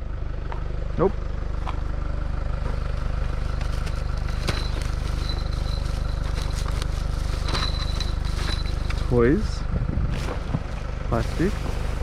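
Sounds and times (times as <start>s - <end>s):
vehicle engine idling: 0.0s - 12.0s
items clicking: 3.5s - 9.1s.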